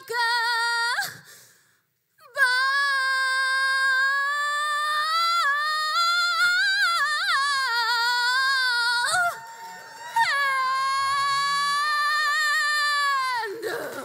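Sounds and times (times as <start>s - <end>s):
woman singing unaccompanied: 0.0s - 1.2s, 2.3s - 9.4s.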